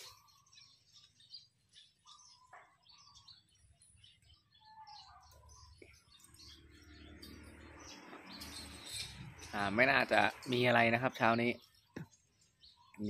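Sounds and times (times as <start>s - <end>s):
faint bird chirps and whistles: 0.0s - 6.4s.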